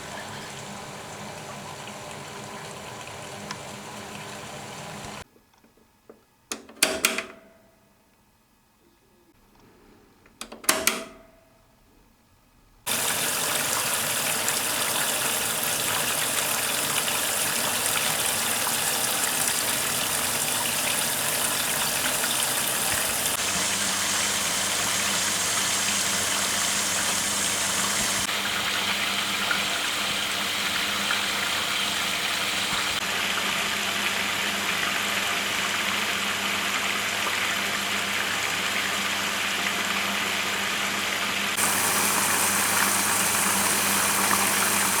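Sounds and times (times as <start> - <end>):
water gushing into drum: 0.0 - 5.2, 12.9 - 45.0
washing machine clunk: 6.5 - 7.7, 10.4 - 11.5.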